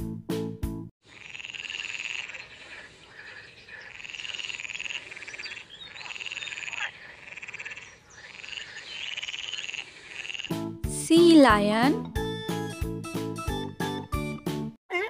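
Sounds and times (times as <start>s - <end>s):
frog croaking: 1.0s - 10.6s.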